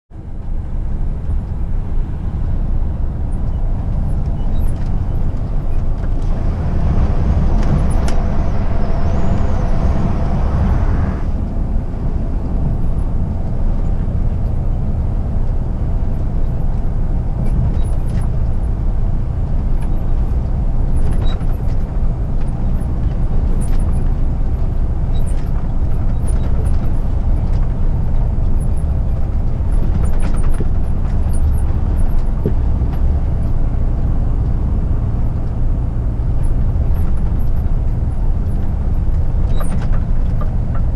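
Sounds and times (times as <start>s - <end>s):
road noise: 0.1s - 40.9s
truck diesel engine drone: 0.1s - 40.9s.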